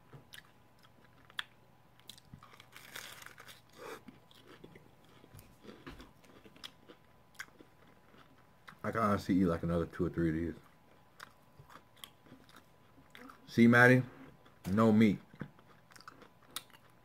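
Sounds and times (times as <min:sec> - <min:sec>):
crunching of crispy taco shell: 0:00.8 - 0:08.4.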